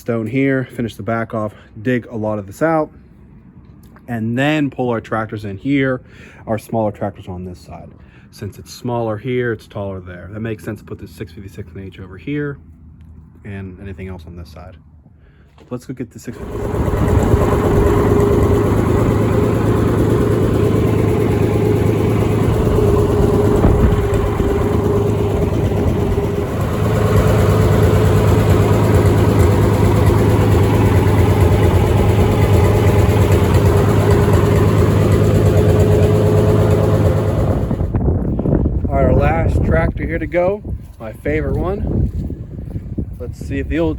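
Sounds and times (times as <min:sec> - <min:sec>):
tractor engine running: 0:16.3 - 0:43.9.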